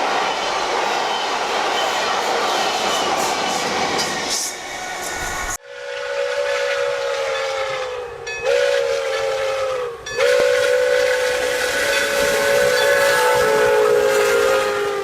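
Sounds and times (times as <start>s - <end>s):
steam hissing: 0.0s - 5.6s, 10.2s - 15.0s
steam locomotive whistle: 5.5s - 15.0s.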